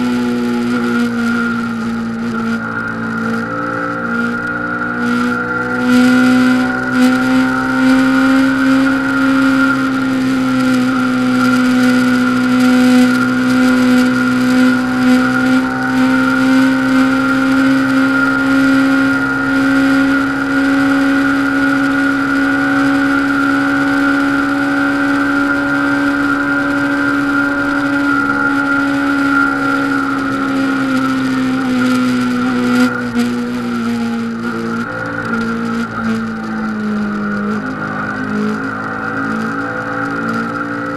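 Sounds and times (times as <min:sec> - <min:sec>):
motorcycle engine at high revs: 0:00.0 - 0:40.9.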